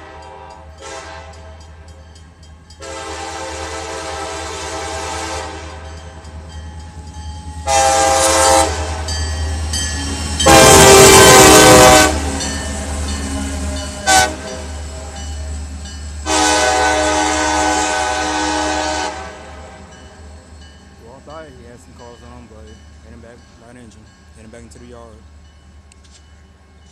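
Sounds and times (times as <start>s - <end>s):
locomotive air horn blasts: 0.0s - 1.6s, 2.8s - 5.9s, 7.6s - 9.1s, 10.4s - 12.4s, 14.0s - 14.6s, 16.2s - 19.8s
locomotive bell ringing: 0.0s - 3.2s, 5.6s - 16.5s, 19.8s - 26.9s.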